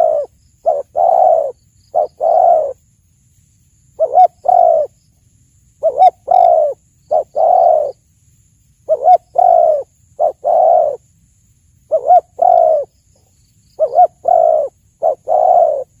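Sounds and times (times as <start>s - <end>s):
dove cooing: 0.0s - 2.8s, 4.0s - 5.0s, 5.8s - 8.0s, 8.9s - 11.0s, 11.9s - 12.9s, 13.8s - 16.0s.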